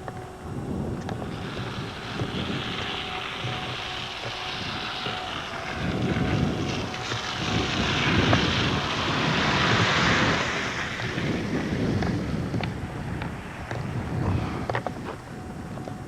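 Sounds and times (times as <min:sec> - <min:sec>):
plane passing over: 0:00.0 - 0:16.0.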